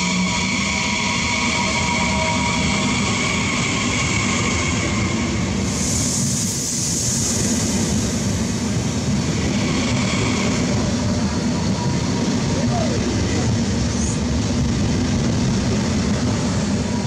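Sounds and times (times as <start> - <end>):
wheels rumbling on rail: 0.0 - 17.0
high hiss: 4.0 - 10.5.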